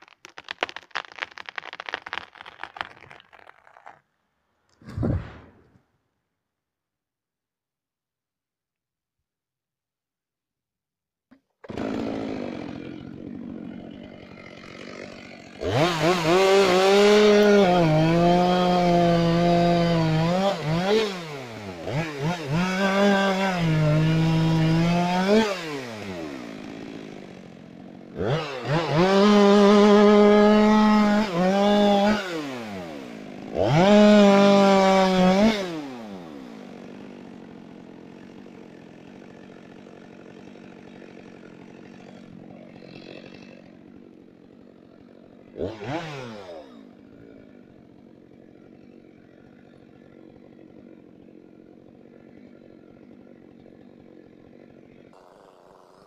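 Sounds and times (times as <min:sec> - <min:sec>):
chainsaw engine revving and idling: 0:11.6 - 0:56.0.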